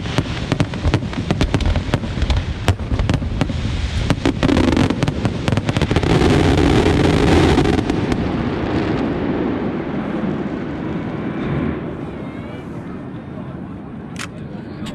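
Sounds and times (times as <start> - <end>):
firework bangs: 0.0 - 11.9
firework crackling: 0.0 - 12.0.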